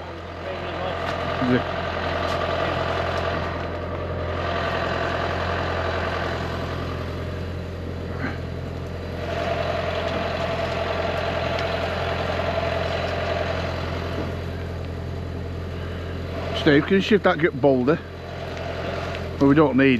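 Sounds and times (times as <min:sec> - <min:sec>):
boat engine humming: 0:00.0 - 0:19.9.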